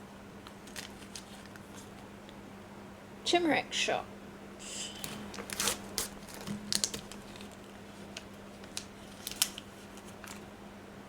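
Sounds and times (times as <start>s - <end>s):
packaging crinkling: 0.4s - 2.0s, 5.0s - 10.5s.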